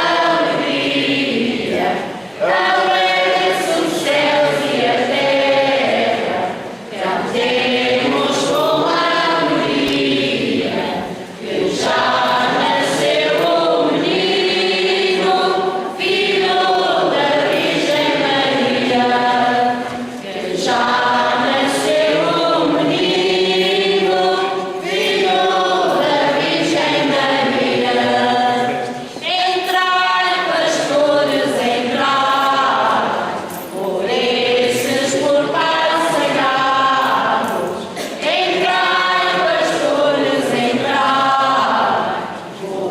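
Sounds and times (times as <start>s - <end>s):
choir singing a hymn: 0.0s - 42.9s.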